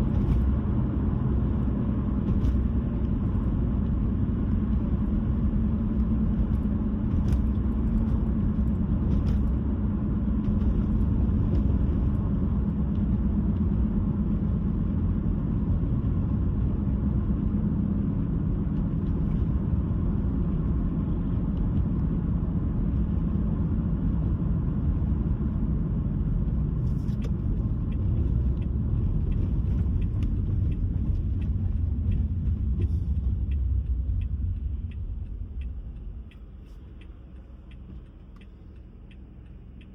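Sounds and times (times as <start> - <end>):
car tyre and engine rumble: 0.0 - 39.9.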